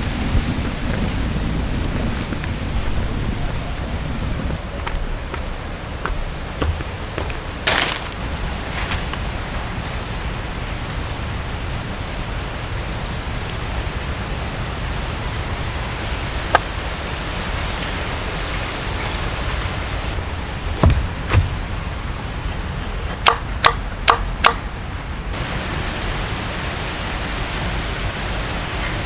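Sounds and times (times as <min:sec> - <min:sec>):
sharp knocks: 0:20.7 - 0:21.8.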